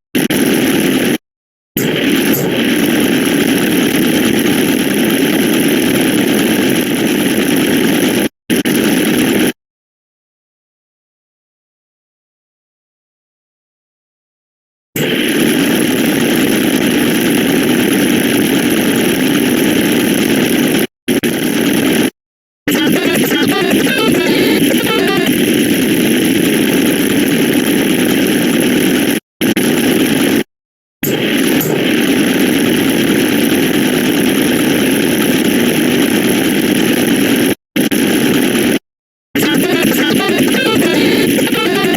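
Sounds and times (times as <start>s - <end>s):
loud dense noise: 22.7s - 27.4s, 39.4s - 41.9s.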